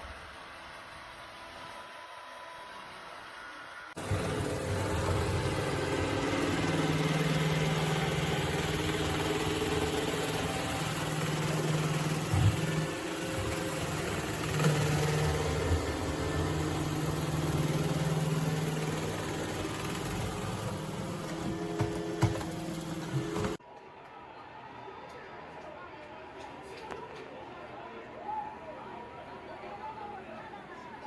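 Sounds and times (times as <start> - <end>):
robot vacuum cleaner motor hum: 3.2 - 23.6.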